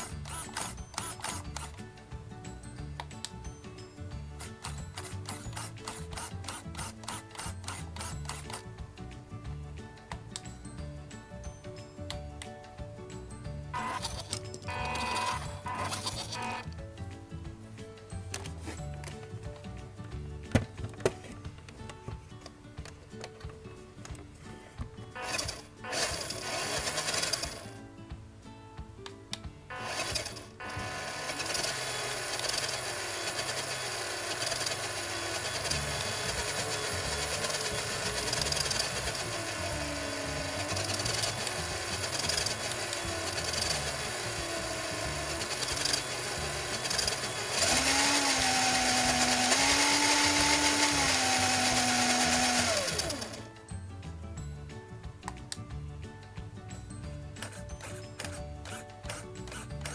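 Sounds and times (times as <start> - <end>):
electric motor and gears whining: 0.0 - 1.9, 4.2 - 8.8, 13.7 - 16.8, 25.2 - 27.7, 29.7 - 53.6, 57.4 - 59.9.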